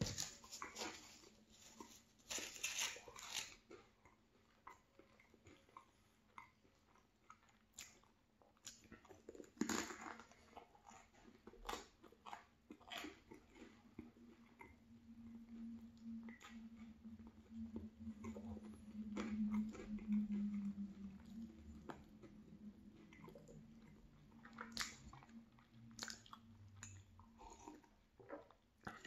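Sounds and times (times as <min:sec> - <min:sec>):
person chewing: 0:00.1 - 0:29.0.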